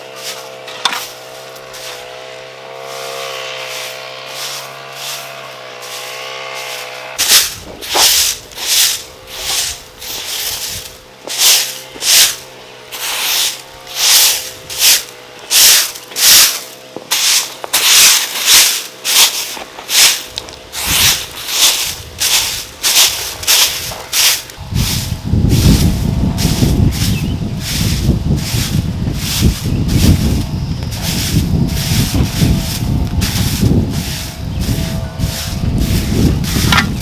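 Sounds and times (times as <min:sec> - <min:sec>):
scraping strokes: 0:00.0 - 0:37.0
wavering hum: 0:20.2 - 0:37.0.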